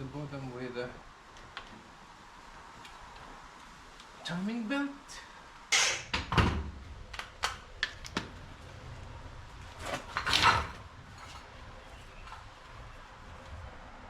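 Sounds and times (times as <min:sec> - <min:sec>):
rattling clatter: 0:09.7 - 0:12.6.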